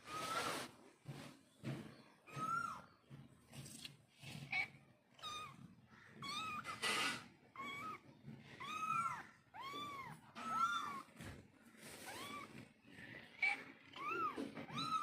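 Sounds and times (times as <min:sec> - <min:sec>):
cat meowing: 0:04.4 - 0:11.3, 0:11.9 - 0:15.0.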